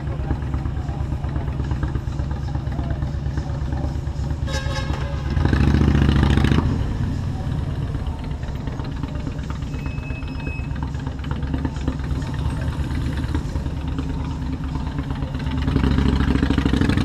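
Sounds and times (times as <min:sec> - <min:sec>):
low engine rumble: 0:00.0 - 0:17.0
motorcycle engine running: 0:00.0 - 0:17.0
vehicle horn toot: 0:04.4 - 0:05.9.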